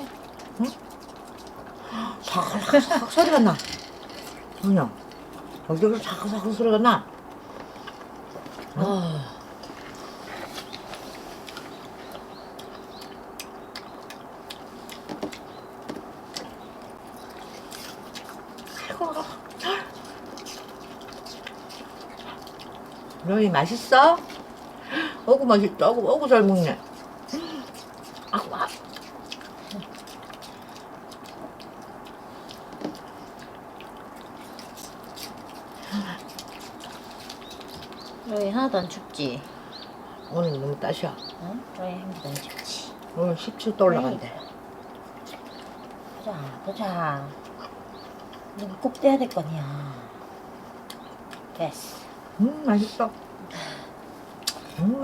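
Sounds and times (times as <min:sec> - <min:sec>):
dog crunching food: 0:00.0 - 0:24.8, 0:26.5 - 0:38.5.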